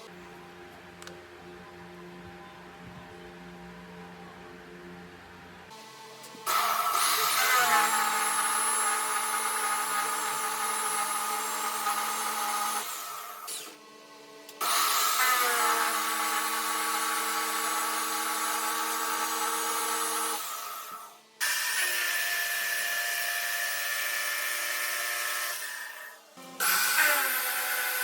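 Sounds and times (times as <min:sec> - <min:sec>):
electric power tool motor running: 0:06.4 - 0:13.8, 0:14.6 - 0:28.0.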